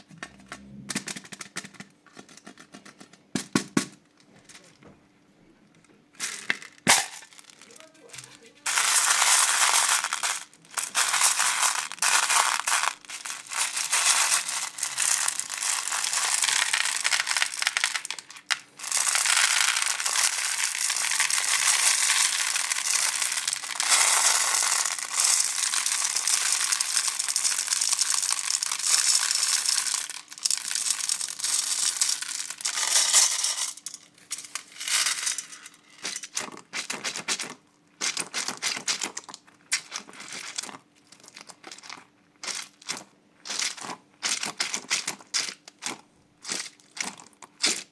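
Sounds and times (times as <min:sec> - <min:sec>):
slime crackling and crunching: 0:06.9 - 0:32.6.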